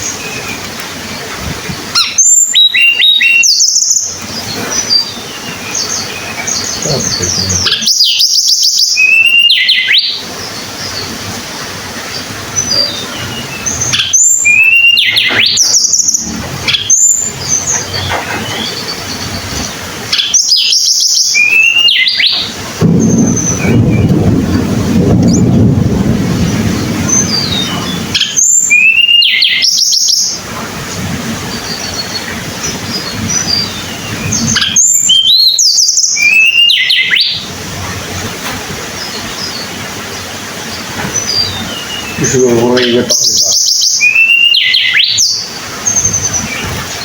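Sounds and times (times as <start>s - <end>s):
bird whistled warbling song: 1.9s - 11.1s, 12.1s - 24.2s, 27.0s - 30.5s, 31.5s - 37.5s, 40.7s - 47.0s
faint bird chirps: 2.0s - 10.2s.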